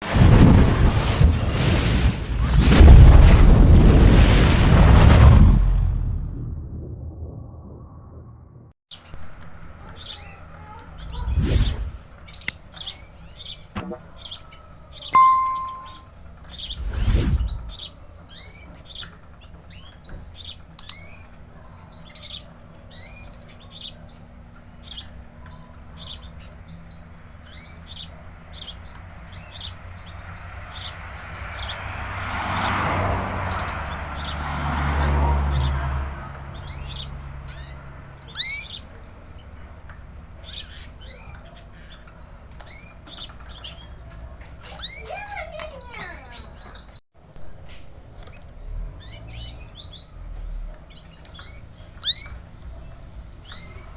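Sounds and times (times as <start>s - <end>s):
rushing noise with low rumble: 10.9s - 12.1s, 16.7s - 17.8s
canary chirping: 12.3s - 16.8s, 36.5s - 39.6s, 44.6s - 45.1s, 49.0s - 53.9s.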